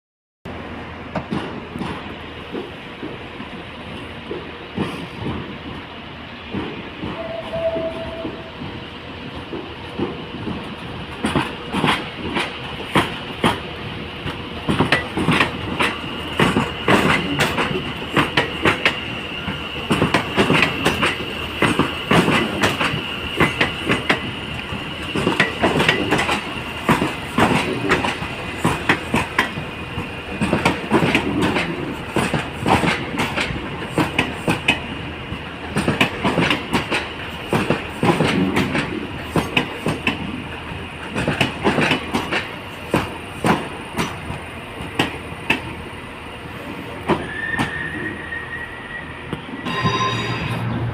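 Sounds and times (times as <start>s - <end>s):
train wheels clicking and knocking: 1.1s - 5.9s, 6.5s - 45.8s, 46.6s - 48.0s
high-pitched wheel squeal: 47.2s - 50.9s.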